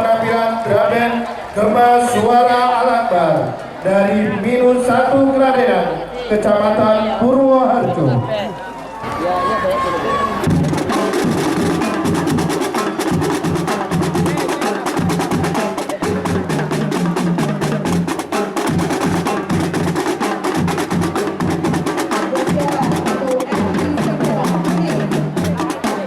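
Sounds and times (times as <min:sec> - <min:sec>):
low drum beats: 0:09.0 - 0:26.0
snare drum strokes: 0:10.0 - 0:26.0.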